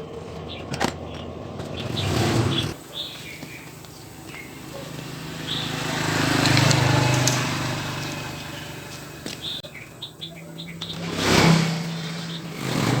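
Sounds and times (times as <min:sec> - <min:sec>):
motor hum: 0:00.0 - 0:13.0.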